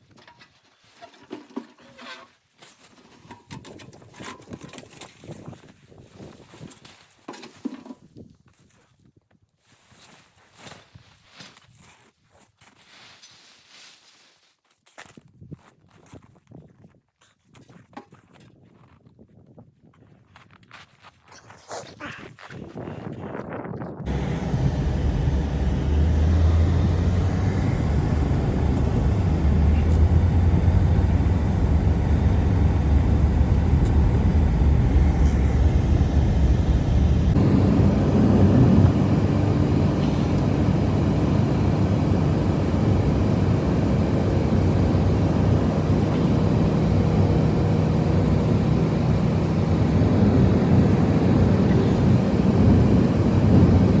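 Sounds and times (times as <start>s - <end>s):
blizzard wind rumbling: 24.1s - 54.0s.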